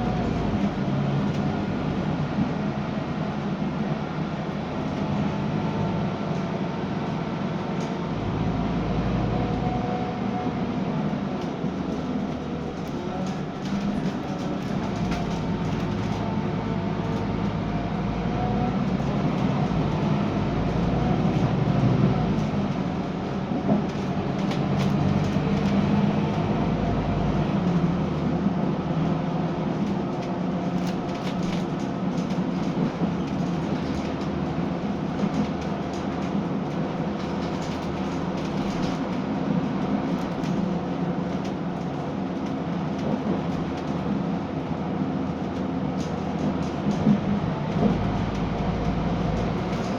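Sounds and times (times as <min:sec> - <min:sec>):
diesel bus engine droning: 0:00.0 - 0:49.9.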